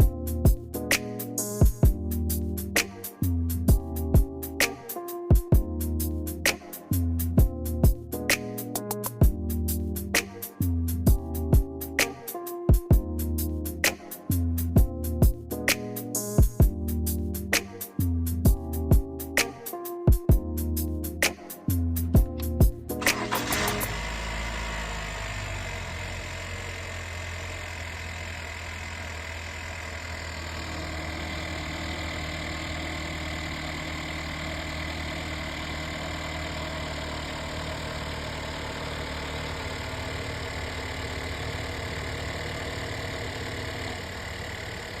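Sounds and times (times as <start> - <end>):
car engine idling: 21.9 - 45.0.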